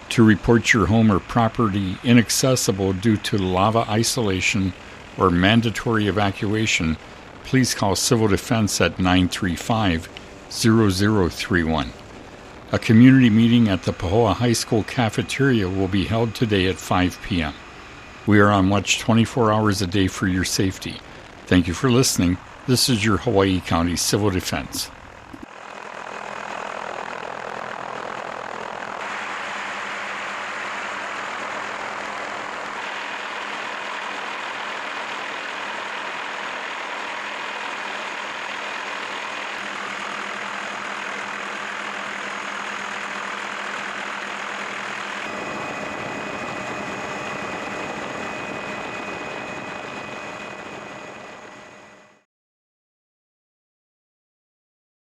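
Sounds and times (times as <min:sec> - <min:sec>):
engine drone with whining: 0:00.0 - 0:52.2.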